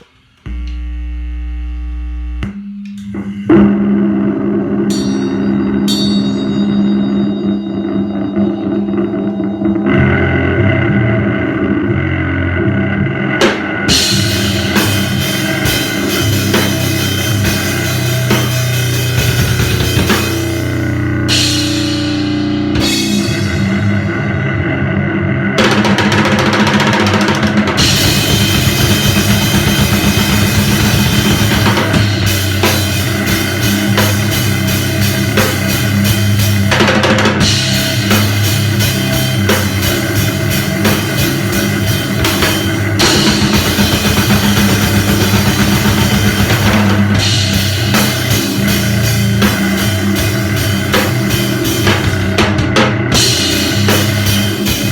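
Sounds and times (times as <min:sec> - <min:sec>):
heavy sustained low notes: 0:00.5 - 0:26.3, 0:27.2 - 0:54.9
pounding drum kit: 0:03.0 - 0:12.1, 0:12.8 - 0:54.9
loud fast band playing: 0:13.4 - 0:24.2, 0:25.6 - 0:54.9.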